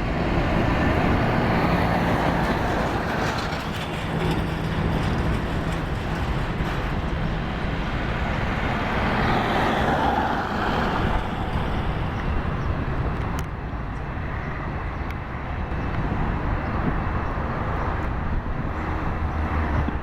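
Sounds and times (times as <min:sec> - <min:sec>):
outdoor engine rumble: 0:00.0 - 0:20.0.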